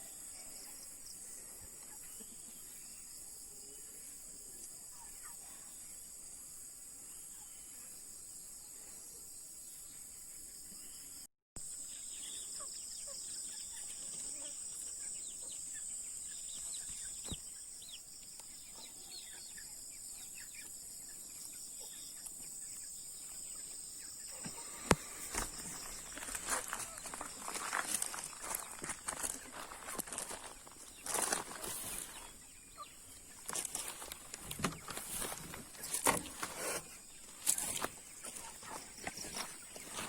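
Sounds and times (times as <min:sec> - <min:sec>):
insects droning: 0:00.0 - 0:40.0
chickens clucking and peeping: 0:12.2 - 0:40.0.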